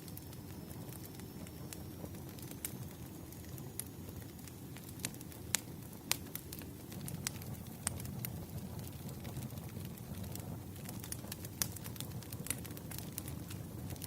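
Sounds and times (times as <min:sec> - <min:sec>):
bonfire crackling: 0:00.0 - 0:14.0.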